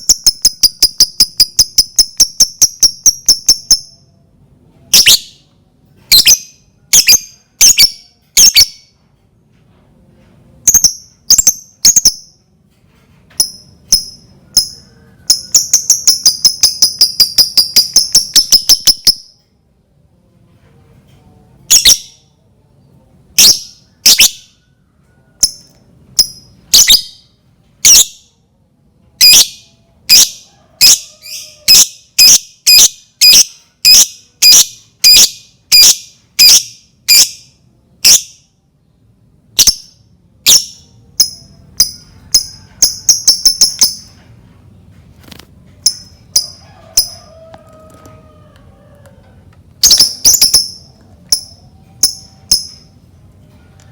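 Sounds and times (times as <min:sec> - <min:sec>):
lovebird sharp chirps: 0:00.0 - 0:04.1, 0:04.9 - 0:05.4, 0:06.1 - 0:08.9, 0:10.7 - 0:12.4, 0:13.4 - 0:19.4, 0:21.7 - 0:22.2, 0:23.4 - 0:24.5, 0:25.4 - 0:27.2, 0:27.8 - 0:28.2, 0:31.7 - 0:38.5, 0:39.6 - 0:44.2, 0:49.8 - 0:52.9.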